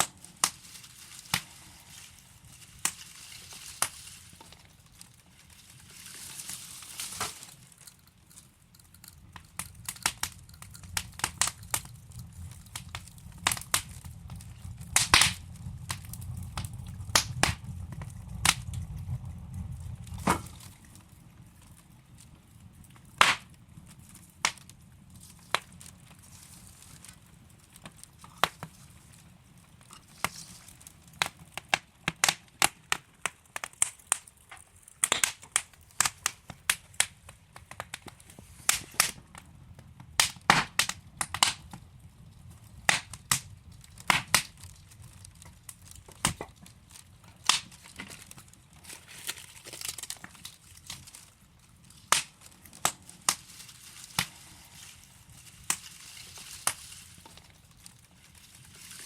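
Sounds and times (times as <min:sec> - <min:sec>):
hiss of flame: 0:00.0 - 0:07.8, 0:09.2 - 0:20.9, 0:37.9 - 0:44.5, 0:52.0 - 0:57.3
wood fire popping and snapping: 0:00.0 - 0:59.0.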